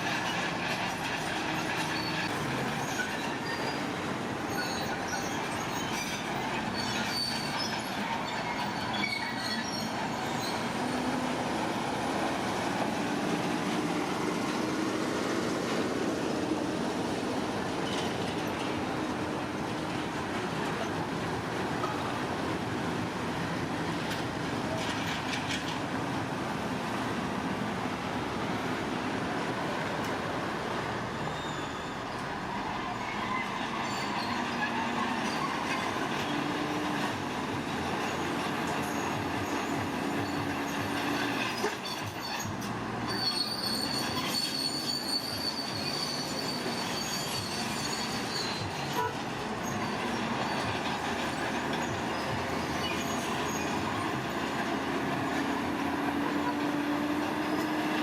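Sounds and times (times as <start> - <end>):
high thin squeal: 4.5 - 11.3, 31.1 - 32.2, 41.6 - 50.7.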